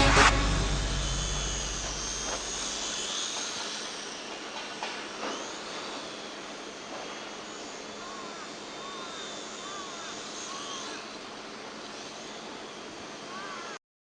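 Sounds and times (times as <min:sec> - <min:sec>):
low music: 0:00.0 - 0:02.9
model airplane motor whine: 0:00.0 - 0:13.7.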